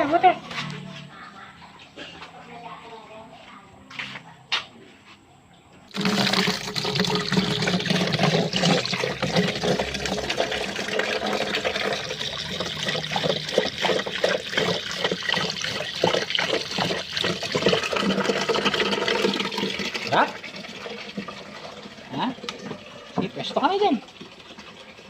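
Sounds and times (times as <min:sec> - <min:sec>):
dog lapping water: 0:05.9 - 0:23.4.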